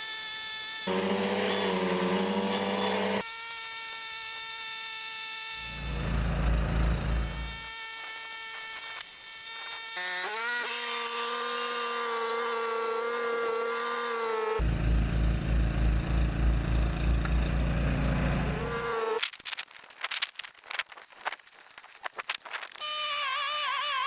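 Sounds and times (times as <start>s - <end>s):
snowblower running: 0.8s - 3.2s, 5.6s - 7.6s, 12.2s - 19.1s.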